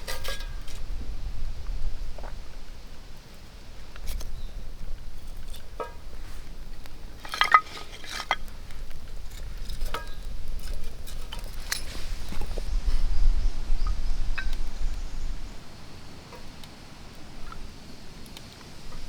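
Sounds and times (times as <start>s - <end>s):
metal cookware clinking: 0.0s - 0.6s, 7.2s - 8.5s.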